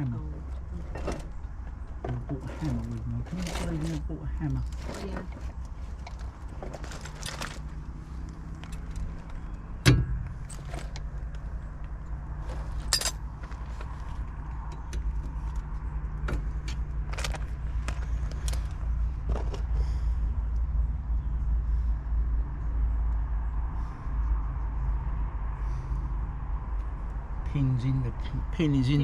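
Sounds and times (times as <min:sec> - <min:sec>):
metal tools clinking and knocking: 0:02.0 - 0:07.8, 0:08.6 - 0:11.4, 0:12.4 - 0:14.0.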